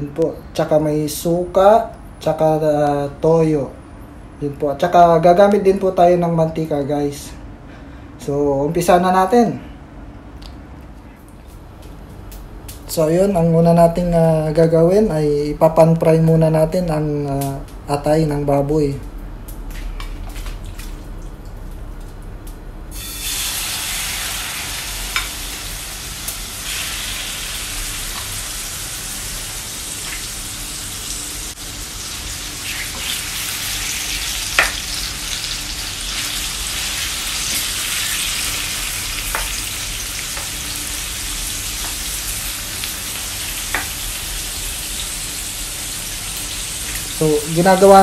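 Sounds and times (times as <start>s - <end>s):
liver sizzling in frying pan: 22.9s - 48.0s.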